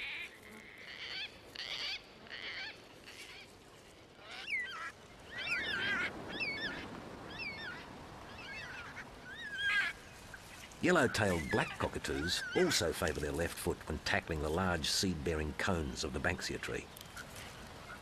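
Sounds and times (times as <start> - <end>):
cockatoos calling: 4.2 - 13.2.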